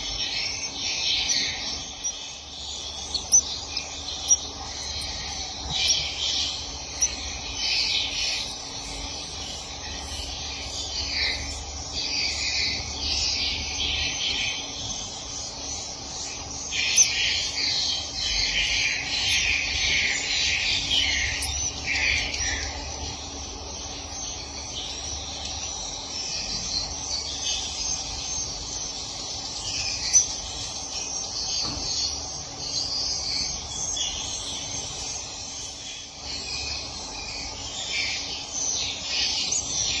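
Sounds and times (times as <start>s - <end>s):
swiftlets twittering: 0.0s - 26.0s
faint steady hum: 0.0s - 40.0s.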